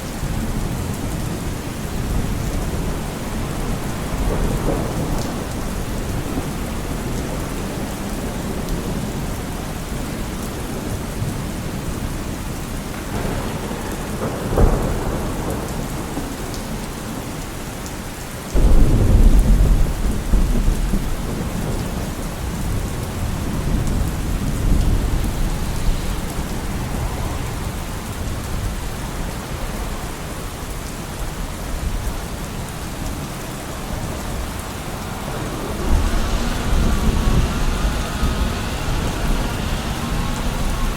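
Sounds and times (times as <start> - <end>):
deep thunder rumble: 0.0 - 17.9, 18.5 - 40.9
steady rain falling: 0.0 - 40.9
sharp thunder crack: 12.8 - 16.8, 18.6 - 29.0, 33.9 - 40.9.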